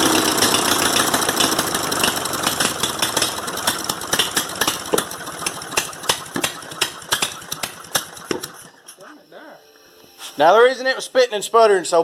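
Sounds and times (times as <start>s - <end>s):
mower engine sputtering and popping: 0.0s - 9.1s.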